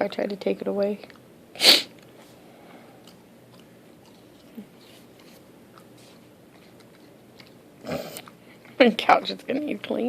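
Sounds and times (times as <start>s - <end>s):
dog chewing and gnawing: 3.0s - 8.8s.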